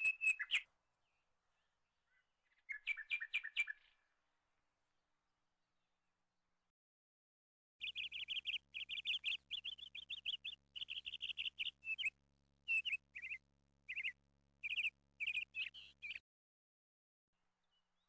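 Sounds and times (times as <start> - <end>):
songbird chirping trills: 0.0 - 4.1, 7.8 - 16.2.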